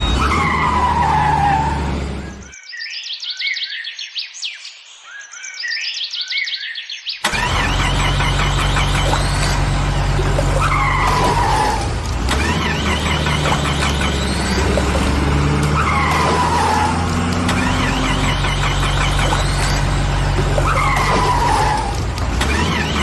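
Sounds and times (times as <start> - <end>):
tyres squealing and skidding: 0.0 - 2.5, 7.2 - 23.0
vehicle engine: 0.0 - 2.5, 7.2 - 23.0.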